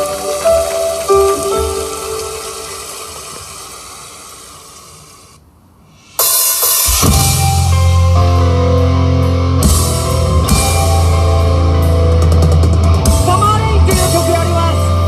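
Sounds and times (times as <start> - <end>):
cymbal crashes: 5.9 - 8.2
live rock band playing: 6.2 - 15.0.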